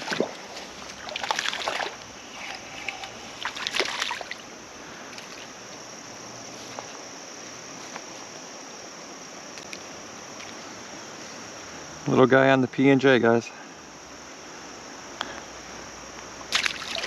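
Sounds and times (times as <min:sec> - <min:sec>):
fish splashing at water surface: 0:00.0 - 0:04.4, 0:16.5 - 0:17.0
creek water rushing: 0:00.0 - 0:06.4, 0:16.4 - 0:17.0.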